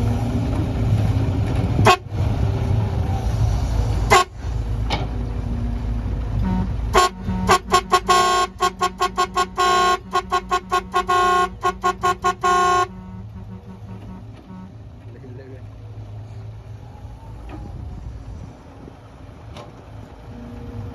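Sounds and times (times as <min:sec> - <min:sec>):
low engine rumble: 0:00.0 - 0:20.9
vehicle horn honking: 0:01.8 - 0:02.1, 0:04.0 - 0:04.5, 0:06.4 - 0:14.8.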